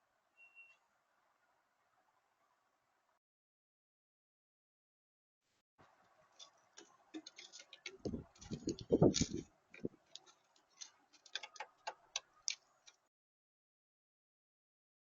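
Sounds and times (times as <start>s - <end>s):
sharp clicks and taps: 7.2s - 13.0s.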